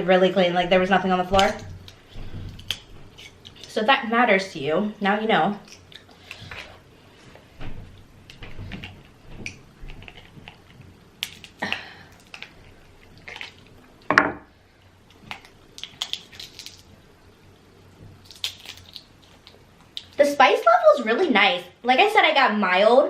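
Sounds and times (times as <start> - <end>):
wet shell peeling: 18.2 - 20.2.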